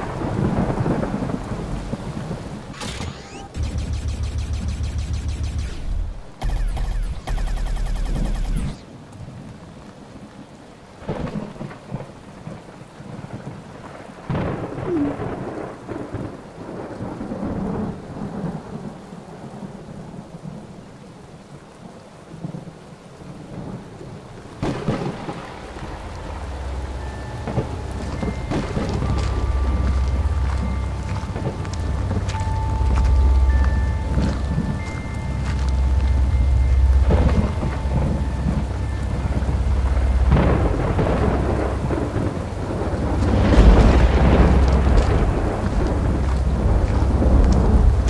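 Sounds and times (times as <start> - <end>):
thunder rolling: 0.0 - 8.9, 11.0 - 18.9, 23.4 - 48.0
rain falling: 0.0 - 48.0
loud low hum: 3.5 - 8.8, 25.7 - 48.0
loud thunder crash: 24.6 - 32.2, 37.0 - 48.0.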